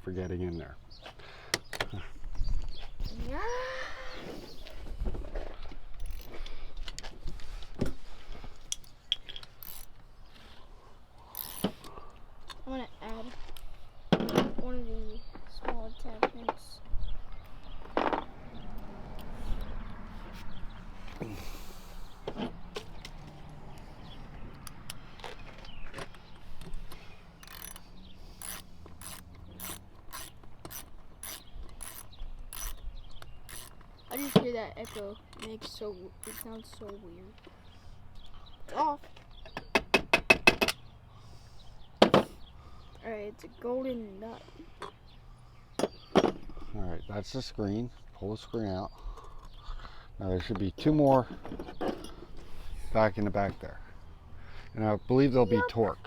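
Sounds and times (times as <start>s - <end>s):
metal hand tools clicking: 27.4s - 27.8s, 28.4s - 32.8s.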